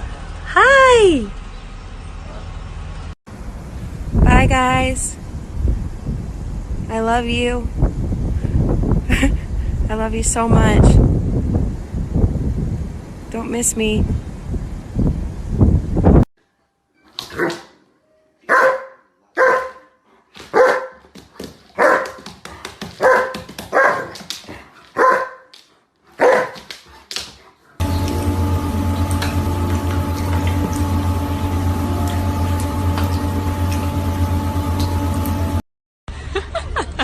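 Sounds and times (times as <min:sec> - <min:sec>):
dog barking: 0:17.4 - 0:17.7, 0:18.5 - 0:21.0, 0:21.8 - 0:22.2, 0:23.0 - 0:24.2, 0:25.0 - 0:25.5, 0:26.2 - 0:26.6
faint steady whine: 0:27.8 - 0:35.6
steady low hum: 0:27.8 - 0:35.6.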